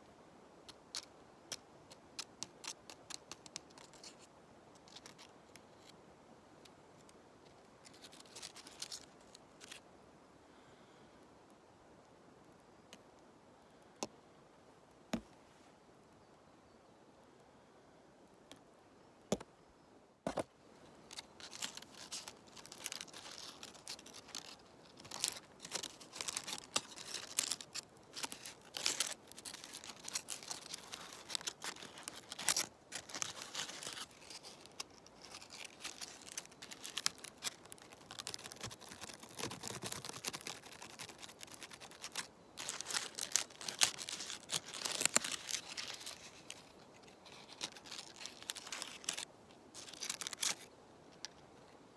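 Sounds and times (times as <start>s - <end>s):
dry leaves and twigs crackling: 0.7s - 6.0s, 7.0s - 9.8s, 21.0s - 51.4s.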